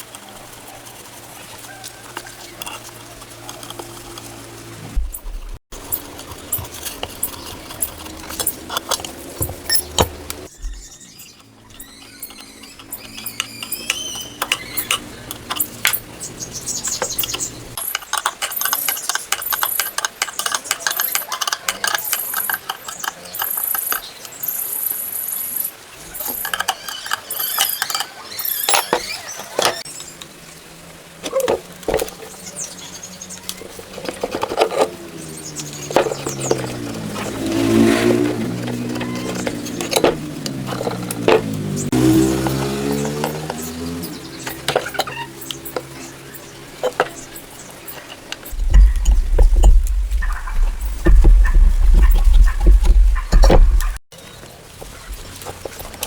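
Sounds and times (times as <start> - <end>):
metal tools clinking: 5.8 - 24.6, 26.0 - 29.8, 33.7 - 54.0
short high squeaks: 9.7 - 15.7
ratchet clicking: 16.9 - 24.3.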